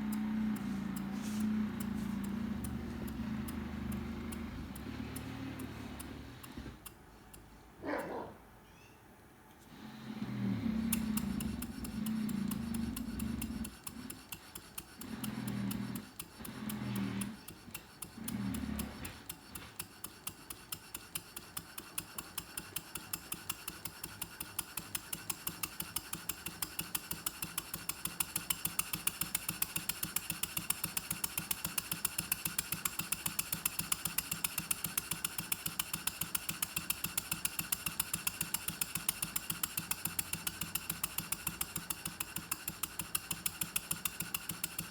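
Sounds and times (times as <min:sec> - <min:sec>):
short low hums: 0:00.0 - 0:06.8
steam engine ticking beat: 0:00.0 - 0:07.5, 0:10.7 - 0:44.9.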